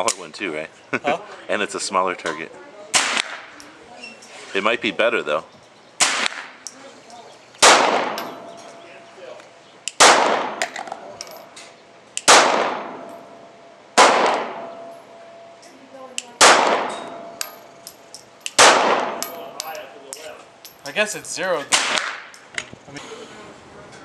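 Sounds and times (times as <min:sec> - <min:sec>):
pistol shots with echo: 0:02.9 - 0:03.5, 0:06.0 - 0:06.6, 0:07.6 - 0:08.7, 0:09.9 - 0:11.1, 0:12.2 - 0:13.4, 0:14.0 - 0:15.0, 0:16.4 - 0:17.9, 0:18.5 - 0:19.6, 0:21.7 - 0:22.3.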